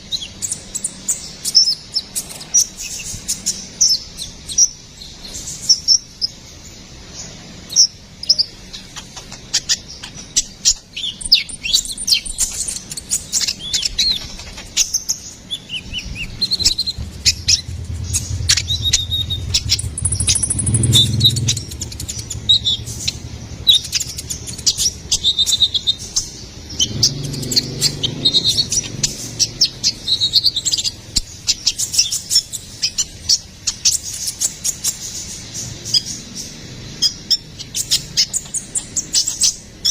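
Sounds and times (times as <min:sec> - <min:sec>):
bird chirping and trilling: 0:00.0 - 0:39.9
low rumble: 0:15.9 - 0:25.7.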